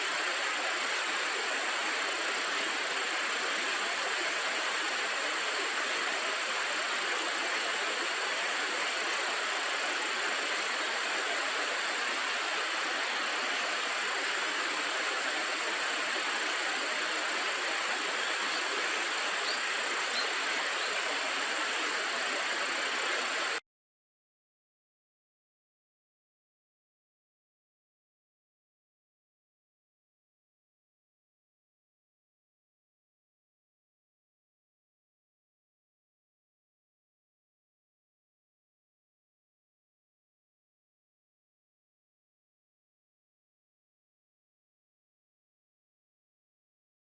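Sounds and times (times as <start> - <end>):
river water rushing: 0.0 - 23.6.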